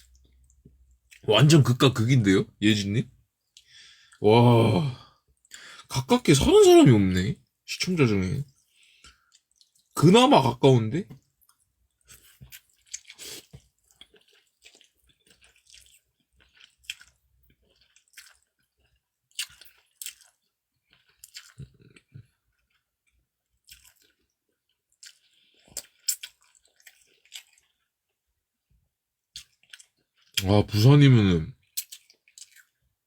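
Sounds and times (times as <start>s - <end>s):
person chewing food: 8.5s - 10.0s, 11.2s - 28.2s, 29.3s - 30.5s, 31.6s - 32.9s.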